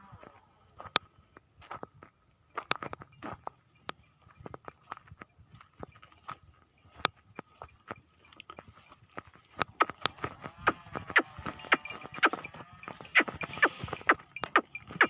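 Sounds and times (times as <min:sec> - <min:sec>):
goat hooves clicking and knocking: 0:00.8 - 0:15.0
goat bleating: 0:09.8 - 0:14.1.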